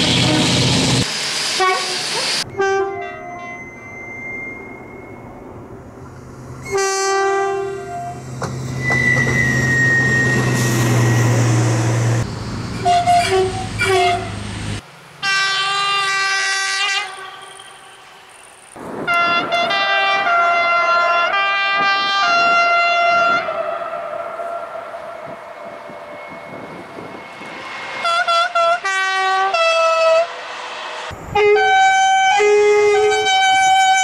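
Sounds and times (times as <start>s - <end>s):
locomotive two-tone horn: 0.0s - 0.6s, 1.6s - 3.6s, 6.6s - 8.2s, 12.8s - 14.4s, 15.2s - 18.0s, 19.1s - 26.6s, 28.0s - 30.4s, 31.3s - 34.0s
passing train noise: 0.0s - 34.0s.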